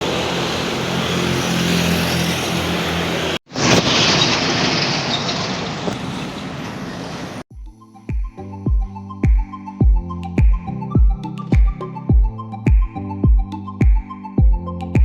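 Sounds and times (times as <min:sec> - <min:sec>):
road traffic: 0:00.0 - 0:07.5.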